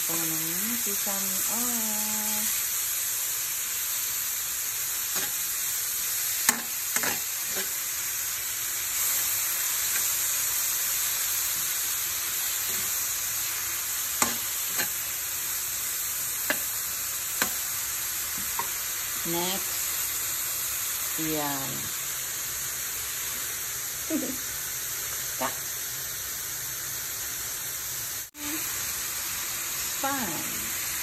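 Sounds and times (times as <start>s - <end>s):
food sizzling in oil: 0.0s - 31.0s
metal spoon scraping a pan: 5.1s - 5.5s, 6.4s - 7.8s, 12.6s - 13.0s, 14.2s - 15.1s.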